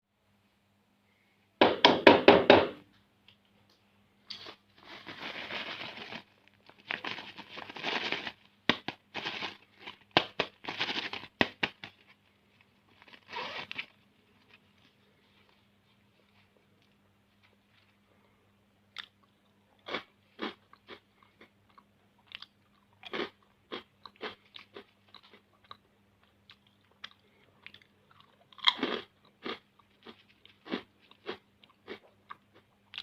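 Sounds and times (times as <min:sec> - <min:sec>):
plastic packets crinkling: 0:04.8 - 0:14.8.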